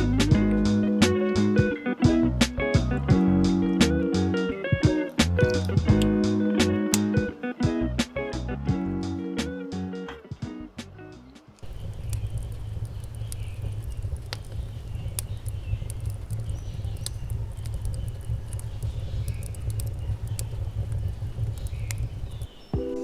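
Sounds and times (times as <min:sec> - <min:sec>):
small sharp clicks: 0:11.3 - 0:22.6
wind buffeting microphone: 0:11.6 - 0:22.8.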